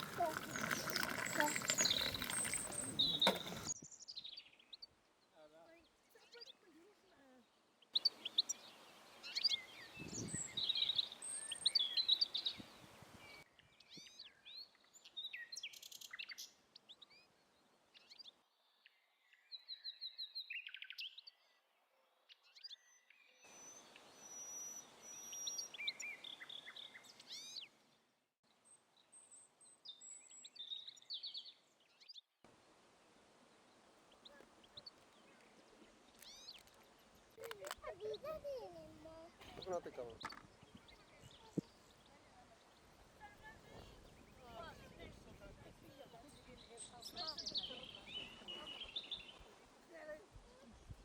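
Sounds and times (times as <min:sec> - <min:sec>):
songbirds chirping and singing: 0:00.0 - 0:04.9, 0:39.4 - 0:49.7.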